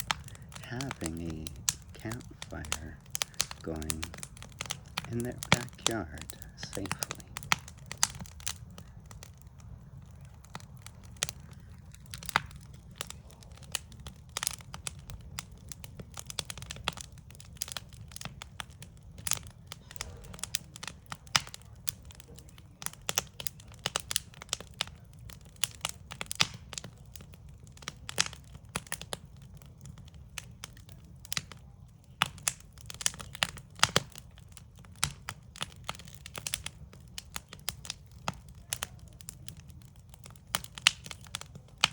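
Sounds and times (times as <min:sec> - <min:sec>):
steady low rumble: 0:00.0 - 0:14.2
campfire crackling: 0:00.0 - 0:41.9
sharp pops and snaps: 0:00.0 - 0:41.9.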